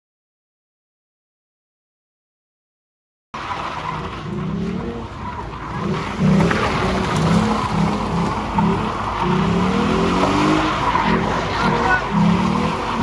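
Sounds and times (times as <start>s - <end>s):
car engine revving: 3.4s - 13.0s
tyres squealing: 5.2s - 13.0s.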